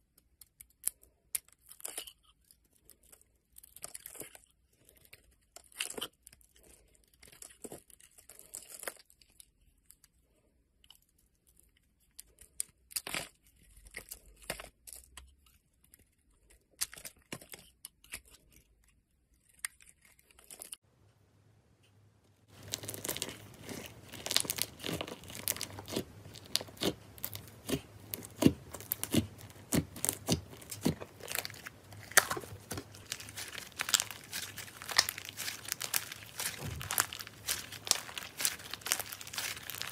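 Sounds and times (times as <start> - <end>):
knife scraping soap: 10.9 - 20.8, 22.6 - 39.9
slime stretching with crackling pops: 22.4 - 39.9.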